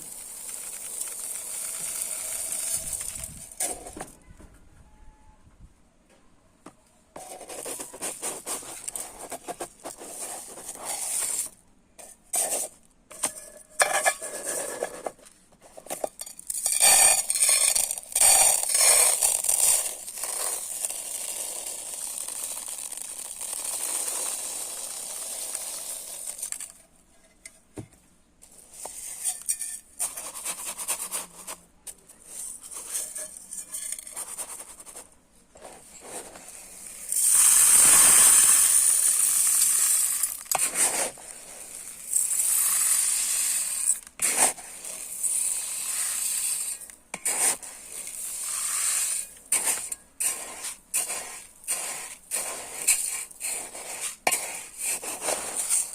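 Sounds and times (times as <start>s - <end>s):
dry rice grains pouring: 0.0s - 3.7s, 16.6s - 26.8s, 36.0s - 55.9s.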